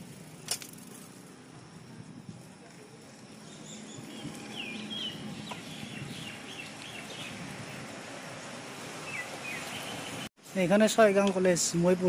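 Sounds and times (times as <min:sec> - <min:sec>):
bicycle rolling on rough road: 0:00.0 - 0:10.3
birds chirping: 0:03.1 - 0:10.3.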